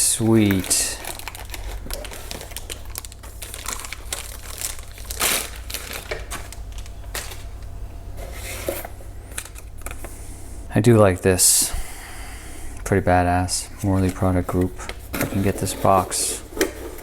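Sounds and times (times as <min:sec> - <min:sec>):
packaging crinkling and rustling: 0:00.0 - 0:10.2, 0:13.8 - 0:17.0.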